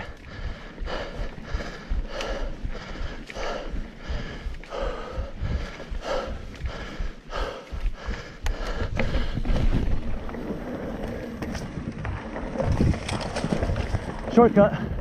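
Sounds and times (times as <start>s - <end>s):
person panting hard: 0.0s - 10.0s
bike rumbling on trail: 0.0s - 15.0s.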